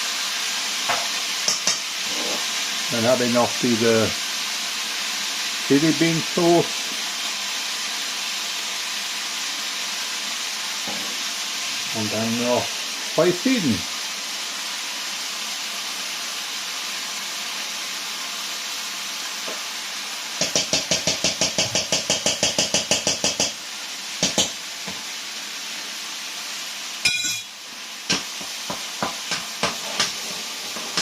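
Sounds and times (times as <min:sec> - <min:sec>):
food sizzling in a wok: 0:00.0 - 0:31.0
ringing metal strikes: 0:27.0 - 0:27.6
utensils clinking against metal: 0:27.0 - 0:27.6.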